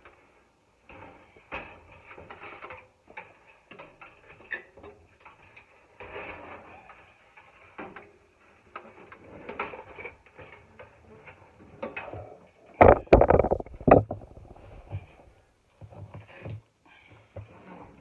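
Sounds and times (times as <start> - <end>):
metal clicks and knocks: 12.8 - 15.0.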